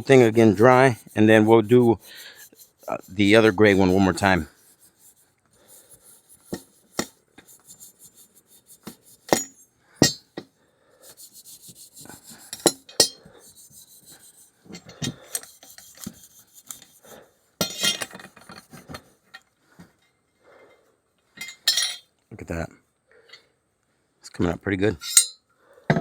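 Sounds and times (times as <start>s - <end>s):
scuff pad scrubbing metal: 0.0s - 10.2s, 11.0s - 17.2s
metal clinks and knocks: 9.3s - 10.5s, 17.6s - 19.4s.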